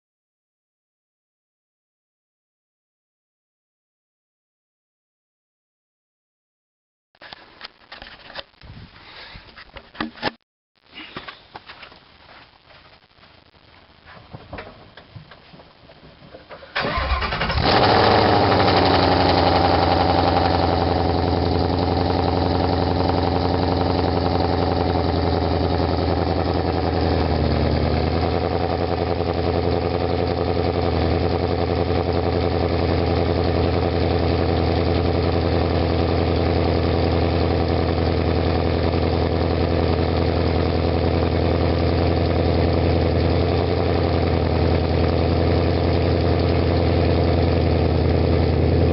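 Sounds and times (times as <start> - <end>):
car engine starting and idling: 16.1 - 48.9.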